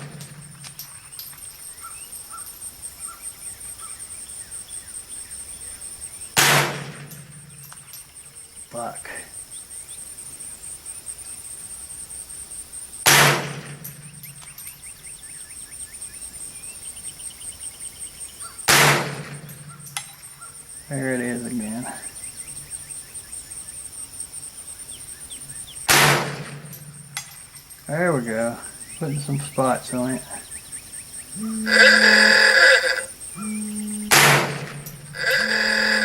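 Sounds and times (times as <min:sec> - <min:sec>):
rifle shots: 0:06.4 - 0:07.5, 0:13.0 - 0:14.0, 0:18.7 - 0:19.8, 0:25.9 - 0:27.4.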